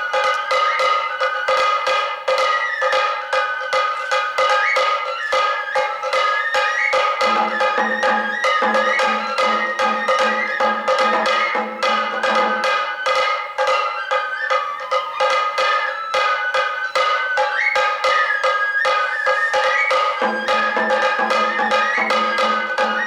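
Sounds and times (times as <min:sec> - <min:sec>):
bamboo flute melody: 0:00.0 - 0:23.0.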